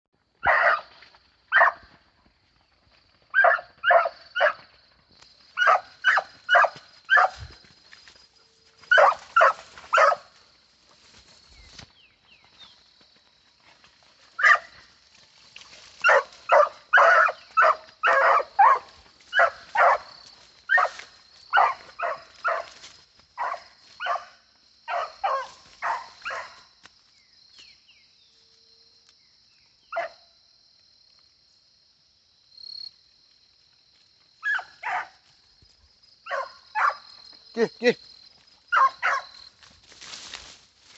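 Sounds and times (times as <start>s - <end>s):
puppy barking: 0.4s - 0.9s, 1.5s - 1.8s, 3.4s - 4.6s, 5.6s - 7.4s, 8.9s - 10.3s, 14.4s - 14.7s, 16.0s - 20.1s, 20.7s - 22.7s, 23.4s - 26.6s, 29.9s - 30.2s, 34.4s - 35.2s, 36.3s - 37.1s, 38.7s - 39.4s.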